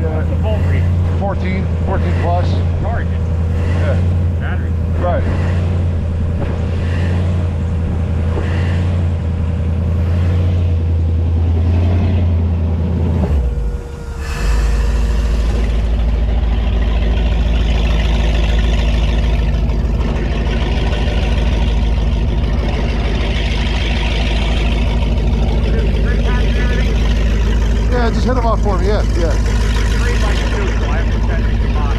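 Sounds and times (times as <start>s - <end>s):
boat engine running: 0.0s - 31.9s
hiss: 13.8s - 16.0s.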